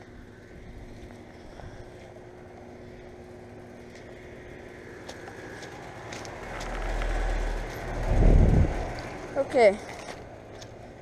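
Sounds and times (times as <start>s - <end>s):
steady low hum: 0.0s - 11.0s
vehicle rumbling past: 2.2s - 10.9s.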